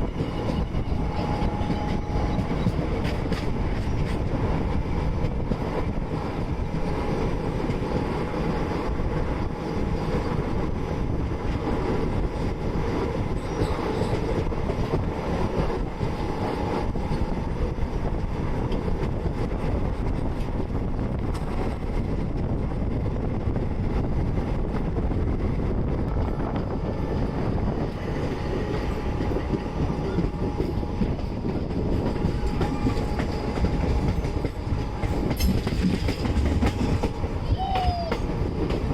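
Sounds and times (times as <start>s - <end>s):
train rumbling: 0.0s - 38.9s
wheels clattering over rails: 29.2s - 38.9s.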